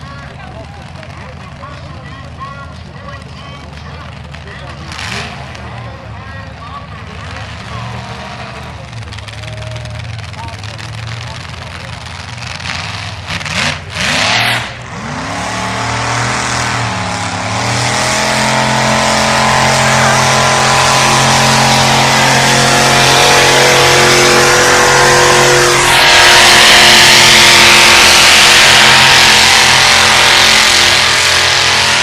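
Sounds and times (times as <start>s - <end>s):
tractor engine running hard: 0.0s - 32.0s.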